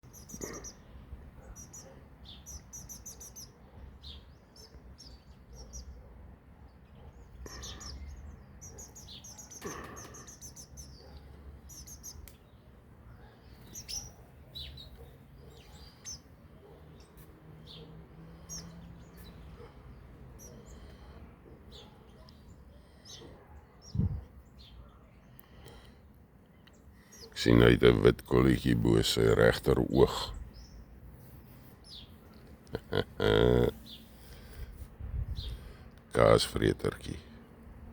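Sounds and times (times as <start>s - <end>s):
songbird trilling: 13.6s - 15.0s.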